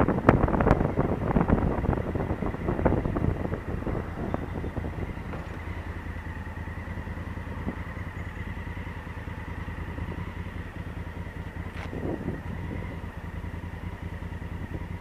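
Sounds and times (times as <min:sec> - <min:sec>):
motorcycle engine running at low revs: 0:00.0 - 0:15.0.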